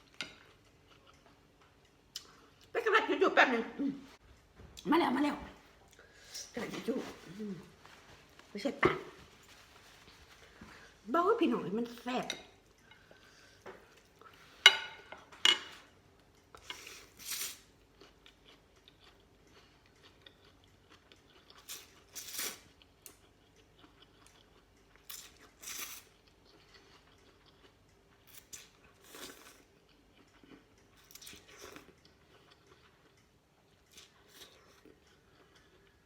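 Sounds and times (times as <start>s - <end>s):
person chewing and slurping: 0.0s - 2.7s, 16.2s - 36.0s.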